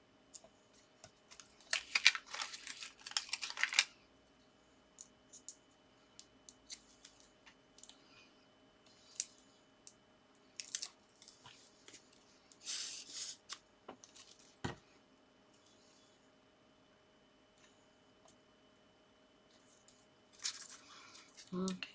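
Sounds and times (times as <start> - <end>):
paper rustle: 1.3 - 3.9, 19.7 - 21.6.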